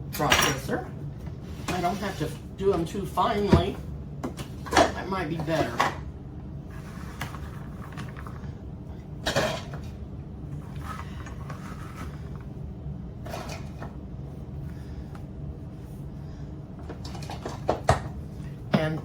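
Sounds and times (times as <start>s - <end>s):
kitchen items clunking: 0.1s - 6.1s, 6.7s - 8.6s, 9.2s - 10.0s, 10.6s - 12.6s, 13.2s - 14.0s, 16.8s - 19.0s.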